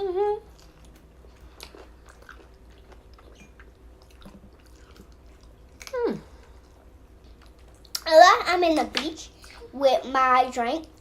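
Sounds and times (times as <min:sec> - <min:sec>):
person chewing food: 0:00.4 - 0:08.0.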